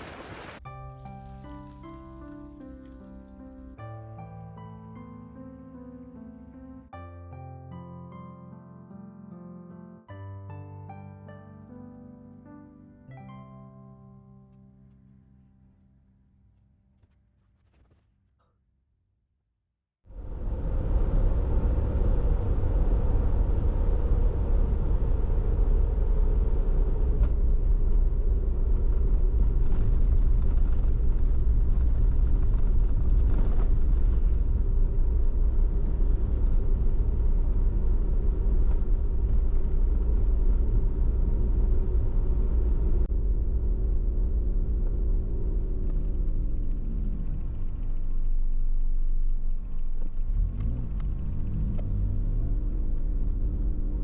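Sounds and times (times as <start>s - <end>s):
van engine and road rumble: 0.0s - 3.8s, 20.1s - 54.0s.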